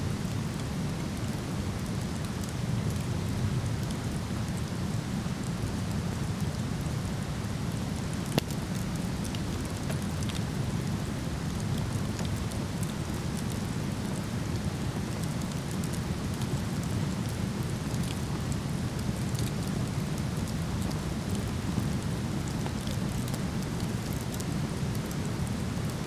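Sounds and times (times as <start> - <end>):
campfire crackling: 8.0 - 26.0.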